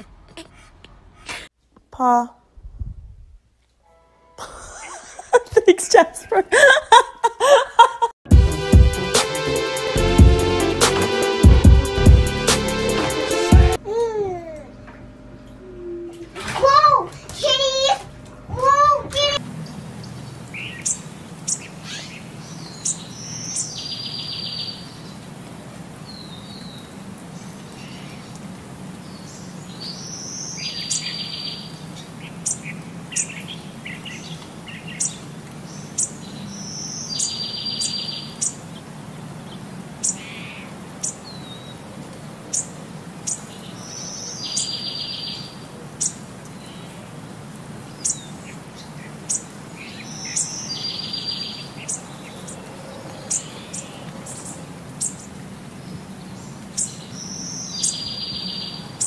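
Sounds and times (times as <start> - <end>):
low steady hum: 13.8 - 21.4
songbirds chirping: 18.2 - 59.0.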